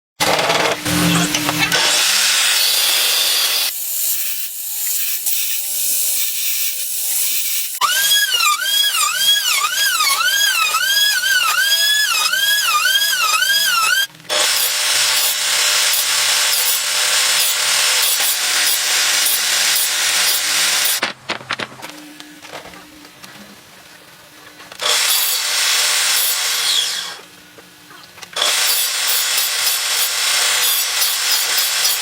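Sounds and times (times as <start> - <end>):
hissing power tool: 0.6 - 21.0, 28.4 - 32.0
rhythmic ringing tool strokes on wood: 5.2 - 15.4.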